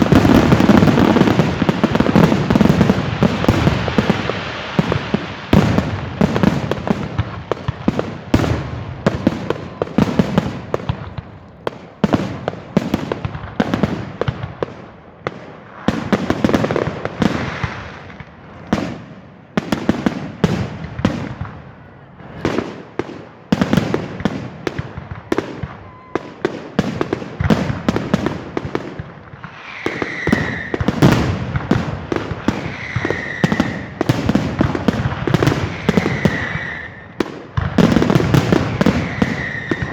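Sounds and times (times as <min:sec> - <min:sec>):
fireworks bangs and crackles: 0:00.0 - 0:39.9
falling firework whistles: 0:25.0 - 0:26.6, 0:29.3 - 0:39.9.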